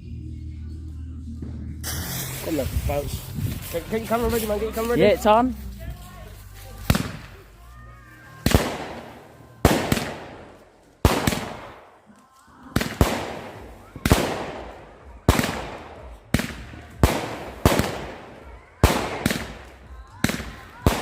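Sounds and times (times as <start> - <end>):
fireworks bangs: 1.8 - 5.4, 6.8 - 7.5, 8.4 - 12.0, 12.7 - 21.0.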